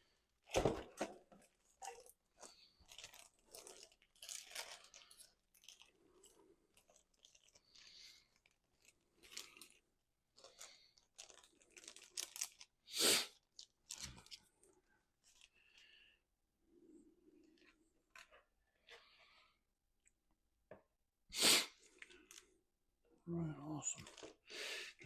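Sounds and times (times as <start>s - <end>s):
packaging crinkling by hand: 0.4s - 15.8s, 22.0s - 22.6s, 23.9s - 24.5s.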